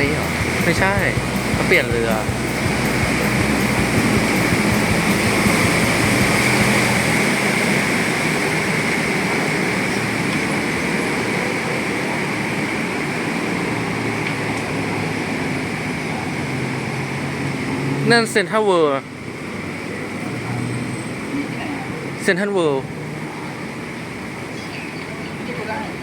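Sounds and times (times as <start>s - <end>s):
boat engine running: 0.0s - 17.9s
rush of water: 0.0s - 26.0s.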